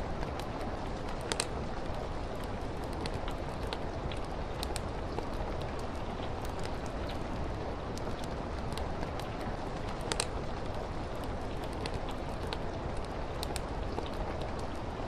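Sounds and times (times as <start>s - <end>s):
steady rain: 0.0s - 15.0s
fireplace crackling: 0.1s - 15.0s.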